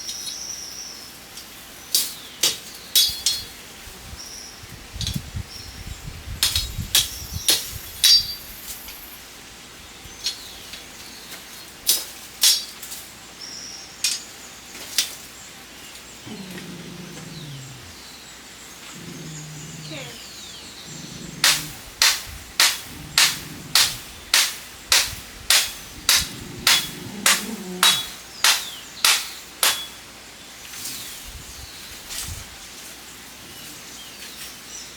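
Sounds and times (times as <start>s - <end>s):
low falling animal call: 16.2s - 18.2s, 18.8s - 22.0s
sharp knocks: 21.4s - 30.0s.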